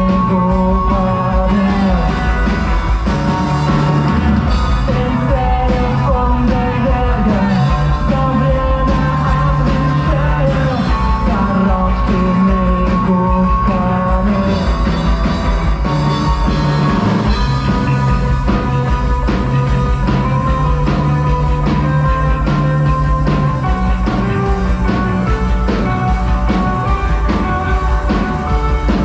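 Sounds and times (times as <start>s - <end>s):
person singing: 0.0s - 2.8s, 4.7s - 15.2s
drums: 0.0s - 29.0s
rock band playing live: 0.0s - 29.0s.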